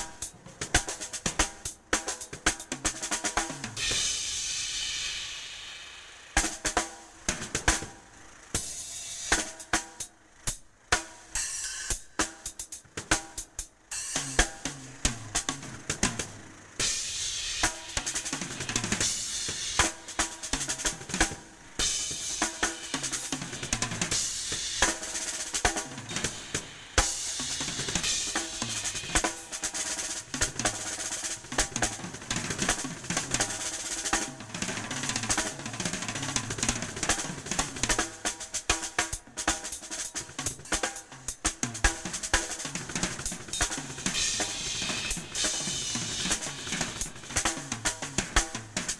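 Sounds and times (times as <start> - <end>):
snare and tom strokes: 0.0 - 8.0, 11.0 - 48.9
cymbals: 0.0 - 15.8, 16.6 - 48.9
bass drum: 40.2 - 48.9.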